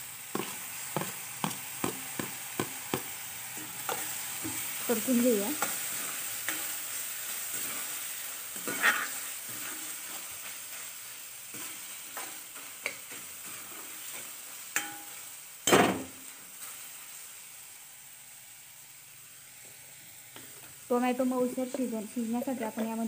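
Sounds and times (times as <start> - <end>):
vegetables sizzling in hot oil: 0.0 - 23.0
metal ladle scraping pan: 8.5 - 10.3
ladle clinking against pan: 14.8 - 15.1.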